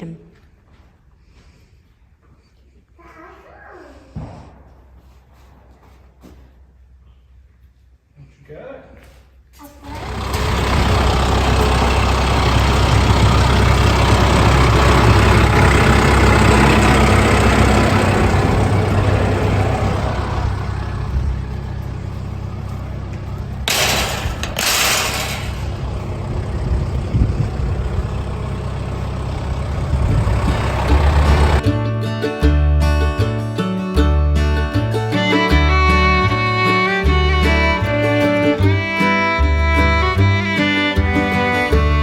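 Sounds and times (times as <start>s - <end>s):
tractor diesel engine running: 9.8s - 31.7s, 35.1s - 42.0s.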